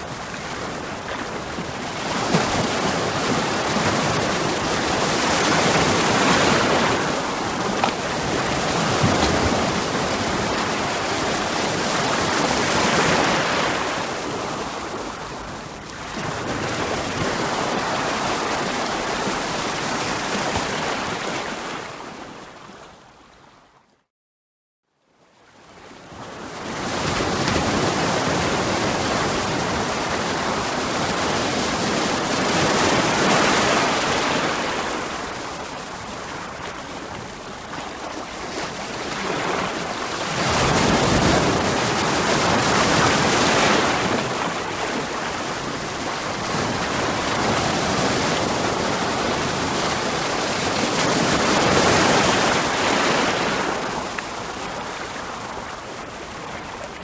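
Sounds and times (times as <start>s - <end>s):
waves breaking against rocks: 0.3s - 15.2s, 36.2s - 55.8s.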